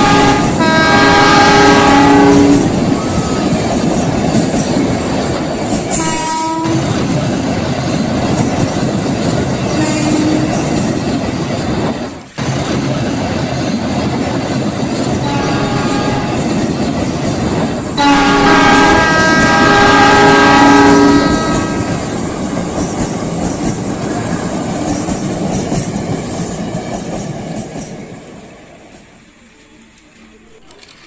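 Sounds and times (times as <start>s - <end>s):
train horn: 0.0s - 2.8s, 5.9s - 7.0s, 9.7s - 10.7s, 15.2s - 16.6s, 18.0s - 22.1s
train rumble and clickety-clack: 0.0s - 31.0s.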